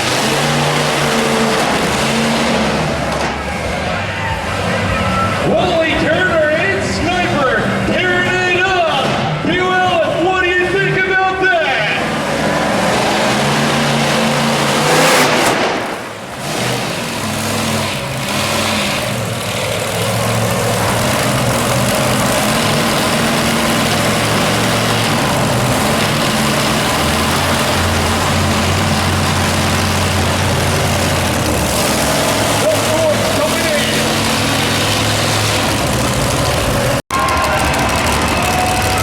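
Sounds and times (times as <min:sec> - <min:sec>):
monster truck engine revving: 0:00.0 - 0:39.0.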